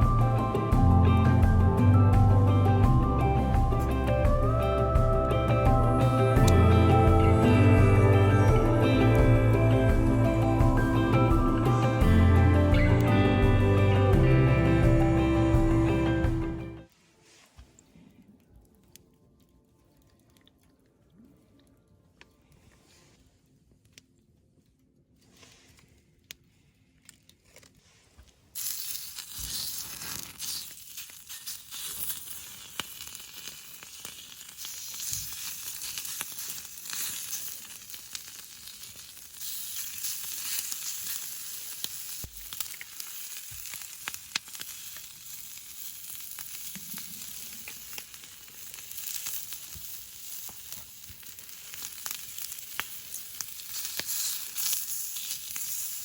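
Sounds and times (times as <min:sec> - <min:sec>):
meat sizzling on a grill: 0:28.6 - 0:56.0.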